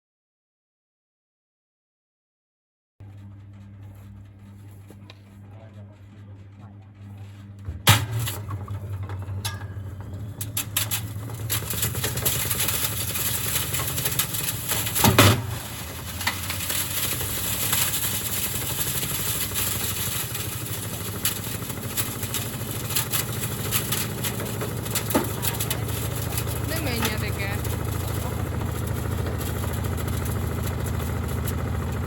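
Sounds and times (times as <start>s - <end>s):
washing machine motor hum: 3.0s - 32.0s
rattling and clicking: 7.8s - 32.0s.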